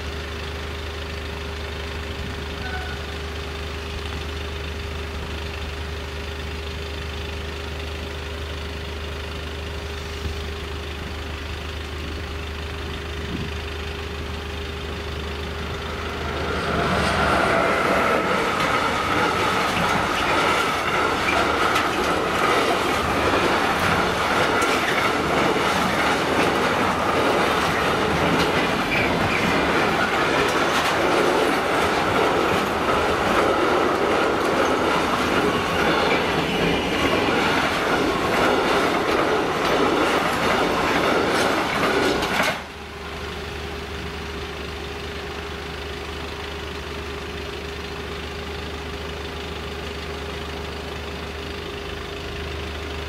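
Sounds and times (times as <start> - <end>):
train wheels clattering on rail joints: 12.7 - 43.0
high wheel ringing: 13.1 - 42.3.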